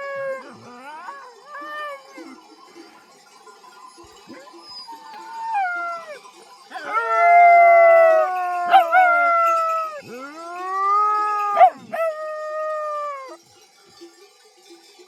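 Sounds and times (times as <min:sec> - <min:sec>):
dog howling: 0:00.0 - 0:02.4, 0:04.9 - 0:13.4.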